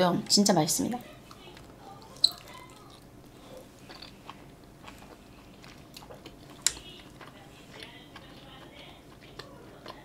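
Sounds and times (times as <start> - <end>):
person chewing dumpling: 1.3 - 10.0.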